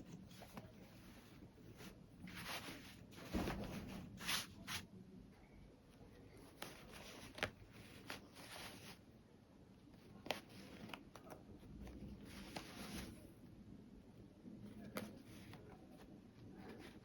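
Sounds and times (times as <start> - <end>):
fabric rustling: 0.0 - 4.8.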